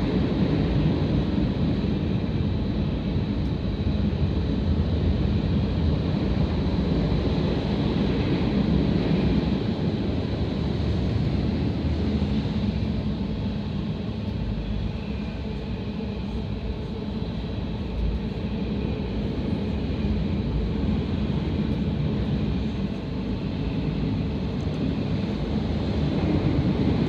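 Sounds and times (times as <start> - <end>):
freight train rumbling past: 0.0 - 27.0.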